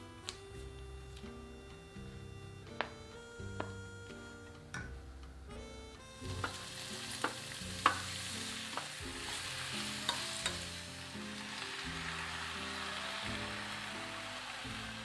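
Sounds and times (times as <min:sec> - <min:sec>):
food sizzling in a pan: 0:06.2 - 0:15.0
utensil clicking against pan: 0:07.2 - 0:08.1, 0:10.0 - 0:10.6.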